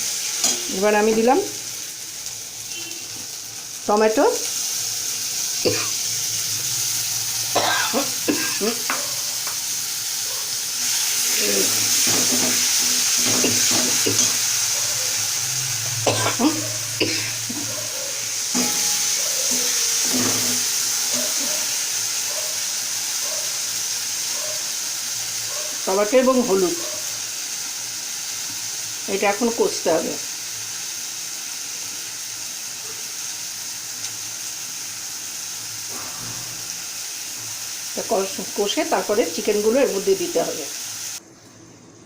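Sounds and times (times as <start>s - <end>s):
paste sizzling in hot oil: 0.0s - 41.2s
spatula scraping and knocking pan: 11.9s - 14.5s, 18.4s - 21.7s.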